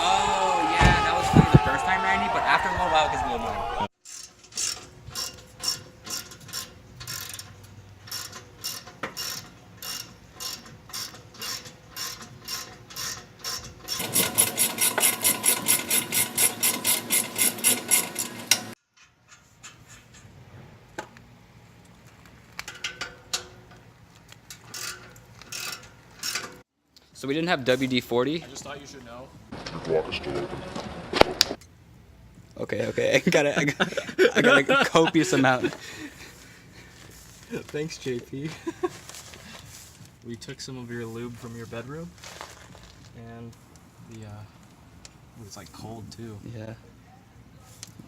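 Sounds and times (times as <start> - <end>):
ratchet wrench clicking: 4.1 - 18.6.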